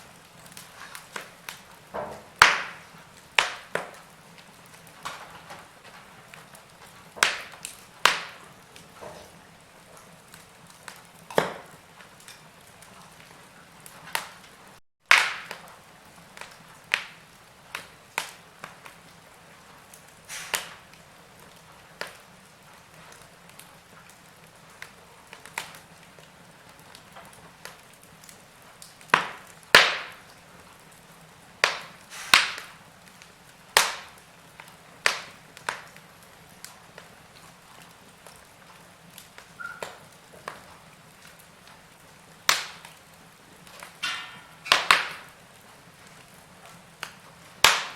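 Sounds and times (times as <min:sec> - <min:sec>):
wood fire crackling in fireplace: 0:00.0 - 0:47.9.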